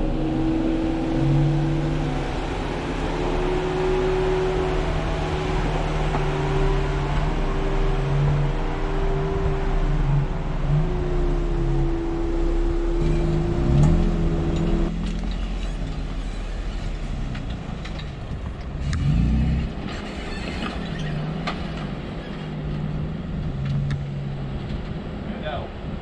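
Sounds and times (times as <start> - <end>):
engine revving: 0.0 - 17.9, 18.8 - 25.1.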